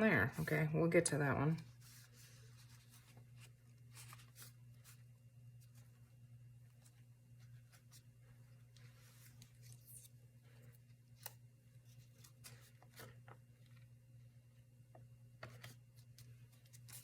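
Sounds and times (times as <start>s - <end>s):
steady low hum: 0.0s - 17.0s
paper rustling: 1.6s - 6.0s.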